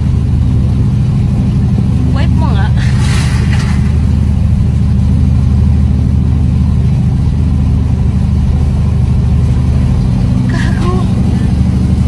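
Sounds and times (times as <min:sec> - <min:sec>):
car engine rumbling under load: 0:00.0 - 0:12.0.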